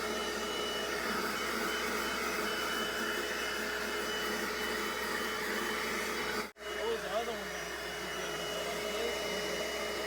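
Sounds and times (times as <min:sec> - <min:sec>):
carpet extractor motor whine: 0:00.0 - 0:10.0.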